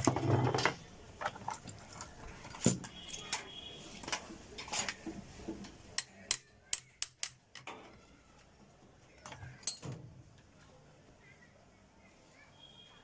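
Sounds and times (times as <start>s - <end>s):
small hard parts clicking: 5.6s - 7.9s.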